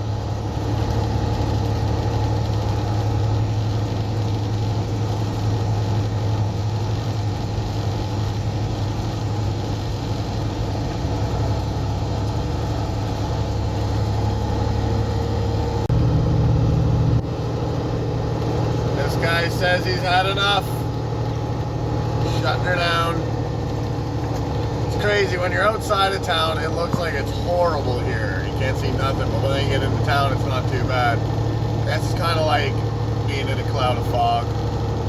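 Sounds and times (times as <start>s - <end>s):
truck diesel engine drone: 0.0s - 35.0s.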